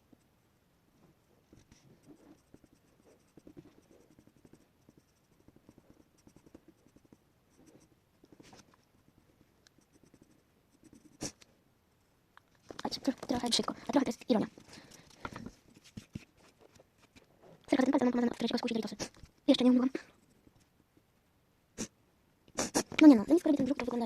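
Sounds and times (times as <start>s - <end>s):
pencil scratching on paper: 1.4s - 11.4s, 14.3s - 19.2s.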